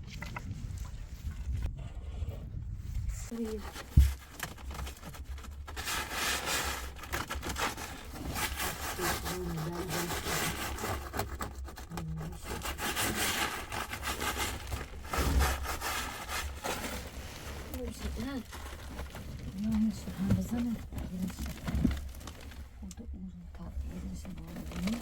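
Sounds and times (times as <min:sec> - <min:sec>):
low steady rumble: 0:00.0 - 0:25.0
tool scraping rough material: 0:03.4 - 0:22.6.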